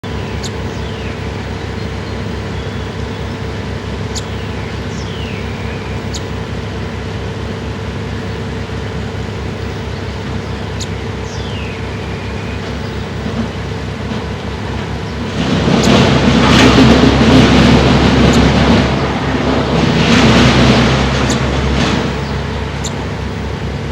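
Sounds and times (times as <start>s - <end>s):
loud mechanical drone: 0.0s - 23.9s
bird chip notes and calls: 0.1s - 6.5s, 9.4s - 13.2s, 22.2s - 23.2s.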